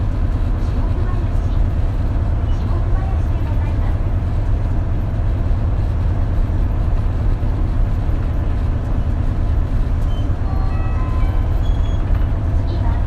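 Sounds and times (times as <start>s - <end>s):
bus engine drone from inside: 0.0s - 13.0s
short high tones: 10.6s - 11.8s.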